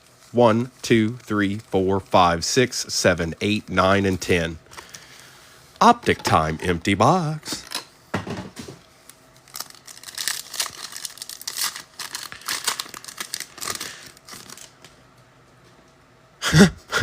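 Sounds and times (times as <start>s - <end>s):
plastic wrappers crinkling and tearing: 0.0s - 2.4s, 9.0s - 15.0s.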